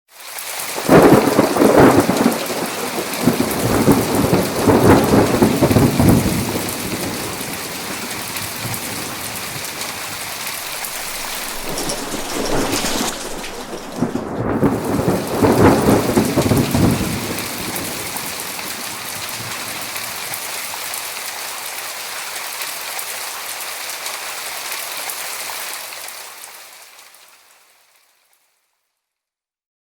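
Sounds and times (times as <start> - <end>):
heavy rain: 0.2 - 27.8
rolling thunder: 0.9 - 9.8, 10.6 - 18.8.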